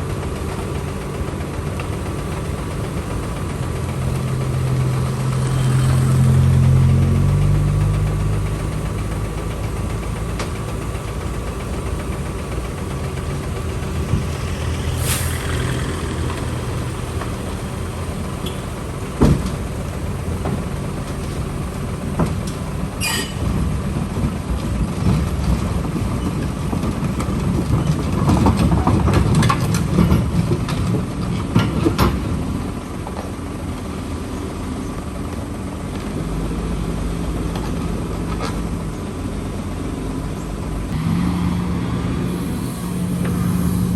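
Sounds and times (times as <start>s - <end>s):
heavy machinery diesel engine running: 0.0s - 43.9s
sharp metallic clanks: 23.0s - 23.6s.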